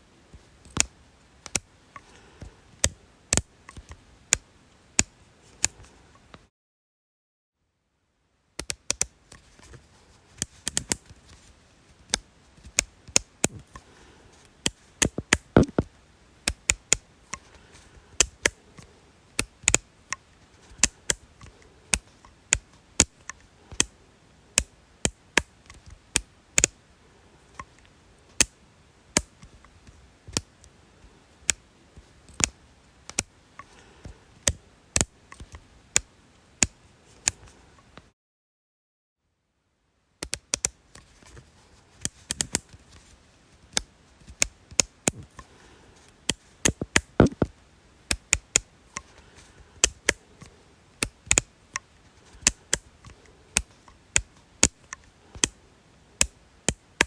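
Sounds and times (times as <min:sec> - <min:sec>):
sharp dry clicks: 0:14.6 - 0:17.6, 0:18.2 - 0:24.0, 0:40.2 - 0:40.8, 0:46.2 - 0:55.6, 0:56.2 - 0:57.0.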